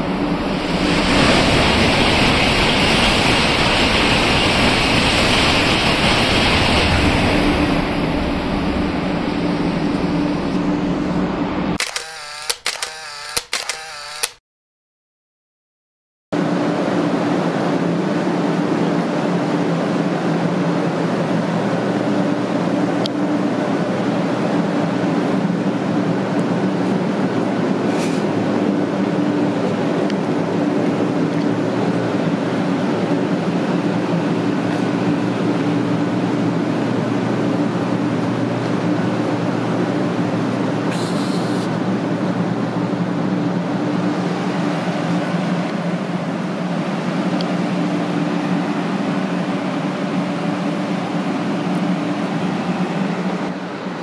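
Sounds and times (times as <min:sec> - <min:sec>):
train equipment humming: 0:00.0 - 0:14.3, 0:19.8 - 0:54.0.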